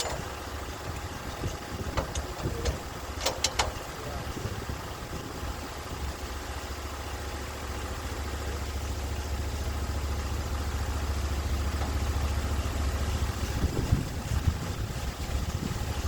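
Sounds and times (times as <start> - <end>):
sawmill engine running: 0.0 - 16.0.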